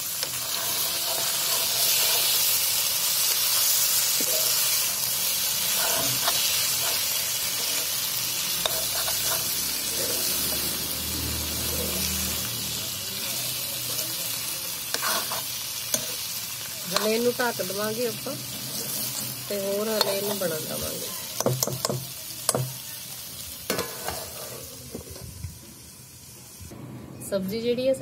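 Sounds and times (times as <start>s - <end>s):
vegetables sizzling in a pan: 0.0s - 26.7s
metal ladle scraping a pan: 0.2s - 4.8s, 5.5s - 10.7s, 14.9s - 16.2s, 23.7s - 24.8s.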